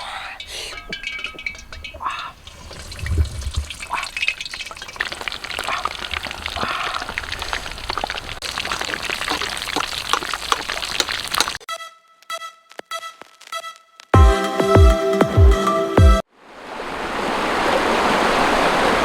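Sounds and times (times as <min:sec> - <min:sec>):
food sizzling in a pan: 0:02.5 - 0:11.6.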